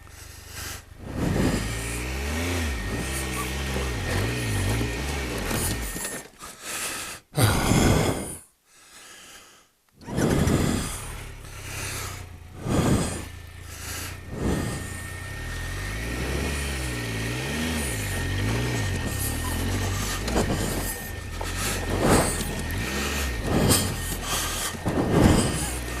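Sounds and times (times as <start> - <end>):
low wavering hum: 0.8 - 6.1, 10.1 - 26.0
person gasping for breath: 6.4 - 15.0, 19.3 - 26.0.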